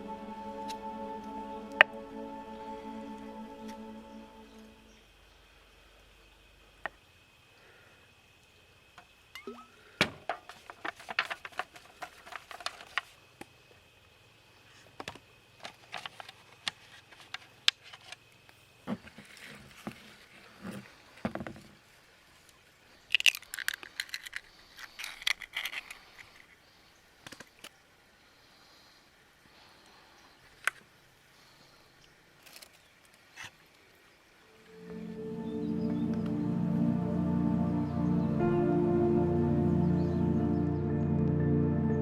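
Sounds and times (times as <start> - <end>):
rustling: 10.4 - 13.2
small objects clicking and clinking: 23.1 - 26.0.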